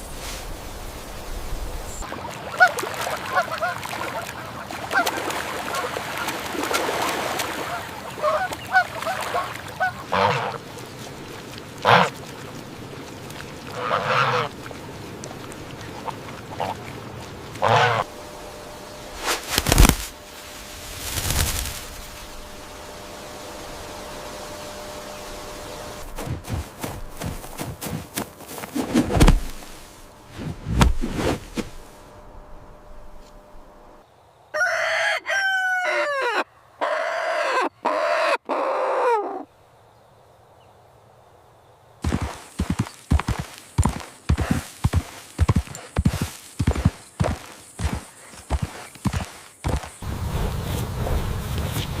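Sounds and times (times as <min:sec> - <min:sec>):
rooster crowing: 0:34.5 - 0:38.4.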